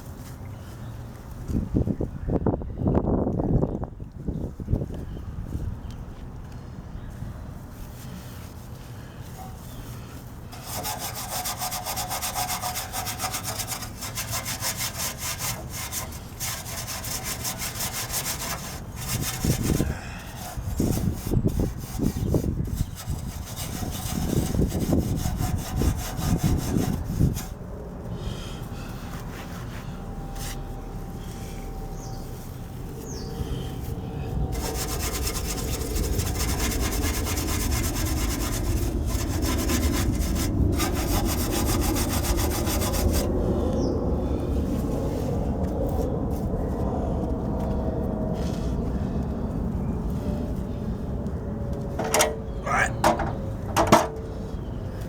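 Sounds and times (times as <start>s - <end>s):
scrubbing strokes on metal frame: 7.7s - 27.6s, 29.0s - 43.3s.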